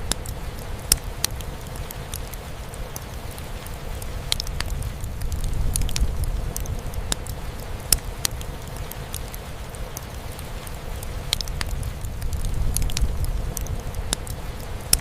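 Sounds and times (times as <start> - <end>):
fireplace crackling and popping: 0.0 - 15.0
rain drumming on a roof: 0.0 - 15.0.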